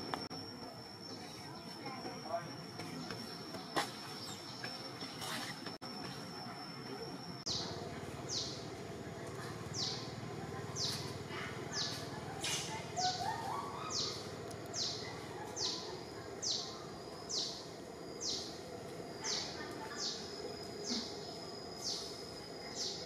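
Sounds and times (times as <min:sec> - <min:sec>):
bird calling: 0:09.7 - 0:18.6.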